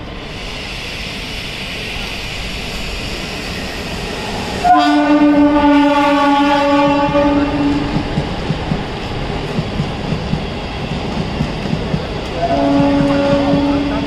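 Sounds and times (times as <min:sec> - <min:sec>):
train rumble: 0:00.0 - 0:14.0
locomotive horn: 0:04.6 - 0:08.0, 0:12.4 - 0:14.0.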